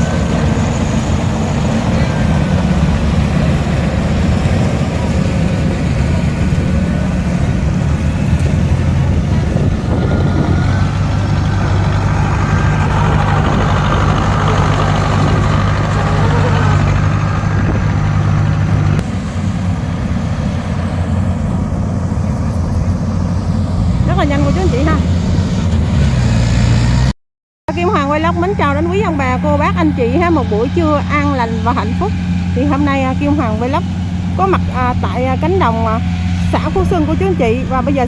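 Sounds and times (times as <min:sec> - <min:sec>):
combine harvester engine running: 0:00.0 - 0:27.1, 0:27.7 - 0:38.0.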